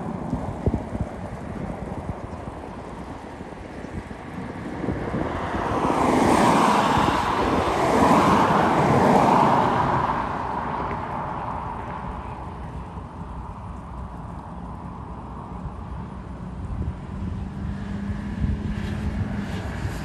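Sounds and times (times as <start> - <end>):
wind rumbling on microphone: 0.0 - 20.0
vehicle passing by: 4.4 - 12.7.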